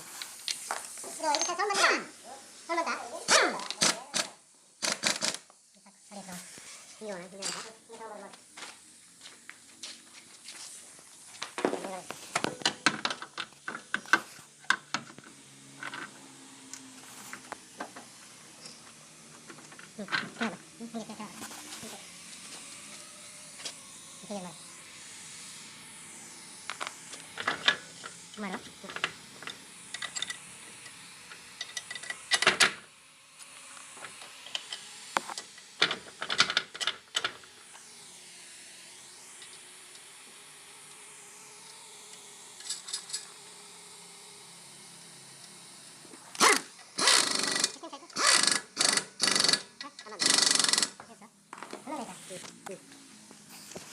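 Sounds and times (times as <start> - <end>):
sharp metallic clicks: 3.6 - 5.5.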